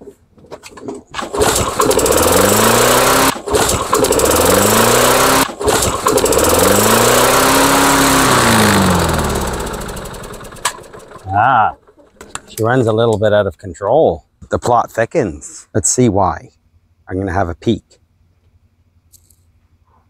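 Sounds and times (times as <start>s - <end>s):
lawnmower engine pull-started: 0.6s - 12.5s.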